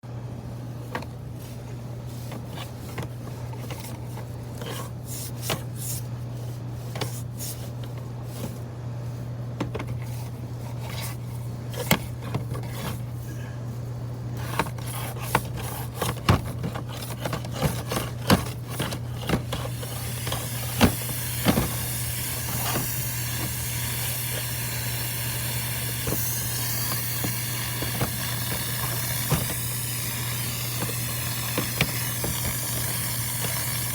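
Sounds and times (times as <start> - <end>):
motor hum: 0.0 - 33.9
knocks and scrapes: 9.6 - 13.1.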